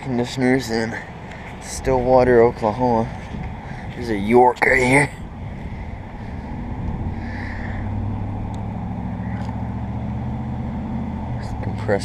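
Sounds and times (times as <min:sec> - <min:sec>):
low mechanical hum: 0:04.8 - 0:11.7.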